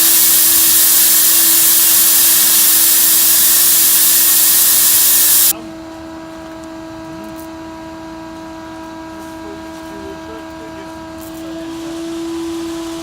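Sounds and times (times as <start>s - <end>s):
loud rushing hiss: 0.0s - 5.5s
machinery humming: 0.0s - 5.5s.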